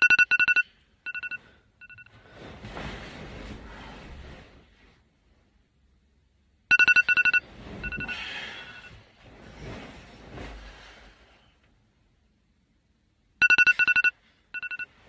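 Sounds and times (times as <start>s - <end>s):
electronic ringer trilling: 0.0s - 2.1s, 6.7s - 8.2s, 13.4s - 14.9s.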